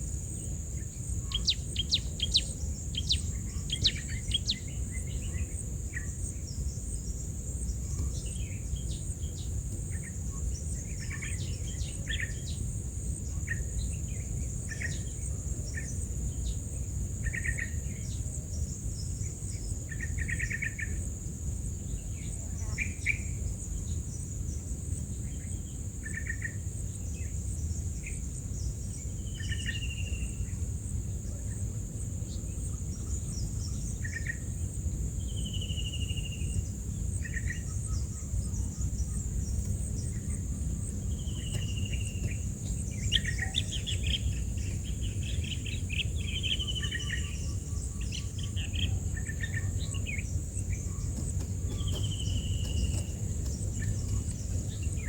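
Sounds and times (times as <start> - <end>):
insects droning: 0.0 - 55.0
bird chirps: 1.3 - 5.3, 37.3 - 55.0
low steady rumble: 38.0 - 55.0.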